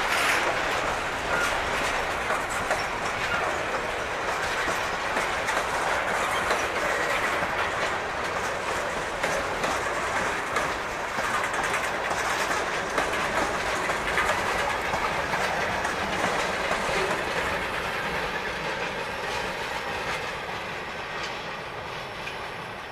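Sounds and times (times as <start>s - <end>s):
freight train wheels rumbling: 0.0s - 22.9s.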